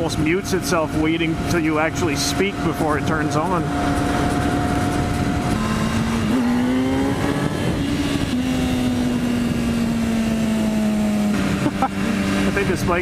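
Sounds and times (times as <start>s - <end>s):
motorcycle engine running: 0.0s - 13.0s
wind rushing: 2.6s - 11.6s.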